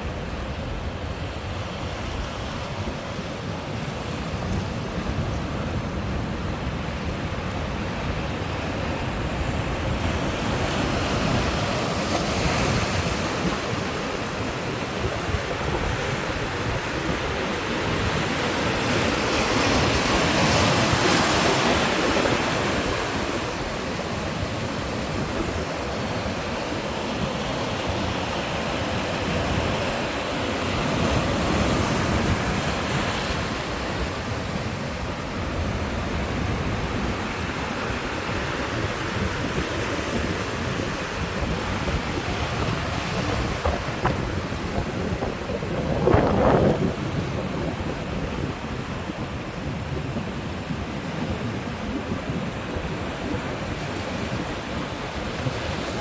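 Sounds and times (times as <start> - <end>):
sea surf breaking: 2.5 - 56.0.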